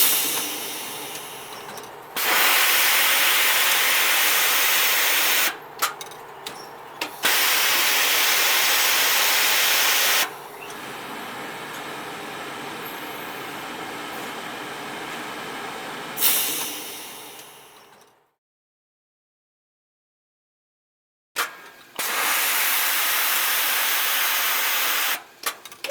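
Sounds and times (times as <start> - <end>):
machinery hissing: 0.0 - 18.0.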